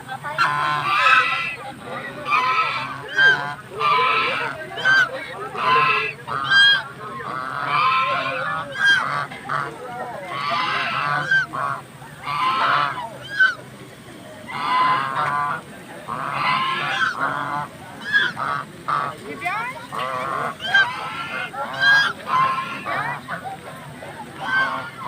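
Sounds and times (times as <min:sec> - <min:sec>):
birds harsh calls: 0:14.5 - 0:19.1, 0:19.8 - 0:23.5.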